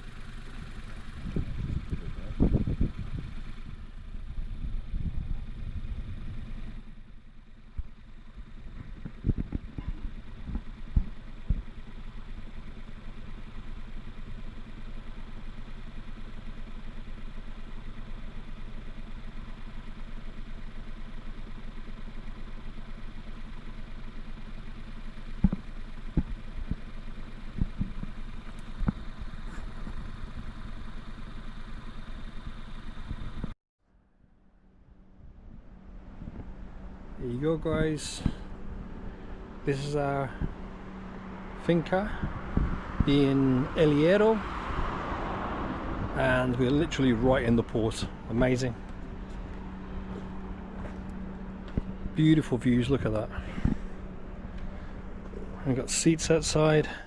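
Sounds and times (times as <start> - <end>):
engine humming: 0.0 - 57.0.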